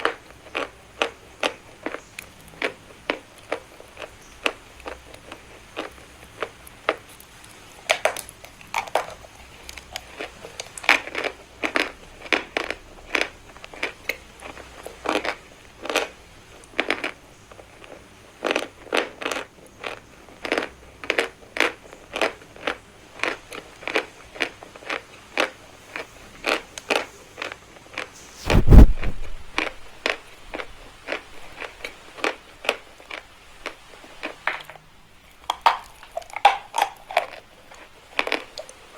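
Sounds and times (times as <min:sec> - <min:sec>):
chalk being bitten and crunched: 0:28.0 - 0:29.8
loud low thump: 0:28.4 - 0:29.6.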